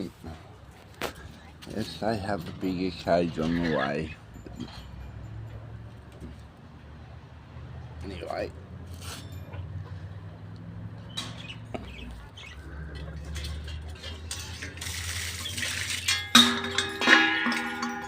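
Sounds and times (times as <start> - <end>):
knocks and rattles: 12.9 - 18.0.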